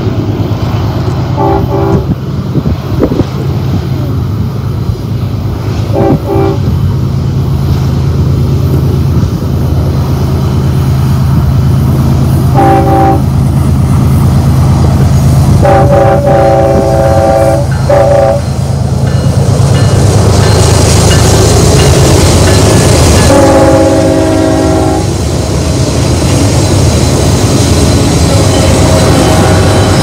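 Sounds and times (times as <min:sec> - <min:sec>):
diesel locomotive engine hum: 0:00.0 - 0:30.0
wheel and rail noise: 0:00.0 - 0:30.0
locomotive horn blasts: 0:01.4 - 0:02.2, 0:05.9 - 0:06.7, 0:12.5 - 0:13.3, 0:15.6 - 0:18.5, 0:23.2 - 0:25.1, 0:28.3 - 0:30.0.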